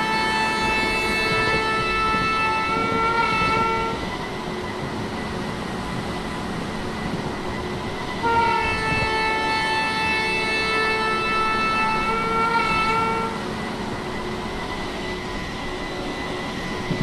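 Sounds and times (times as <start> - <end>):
train horn multi-tone chord: 0.0 - 4.1, 8.2 - 13.5
passing train rumble: 0.0 - 17.0.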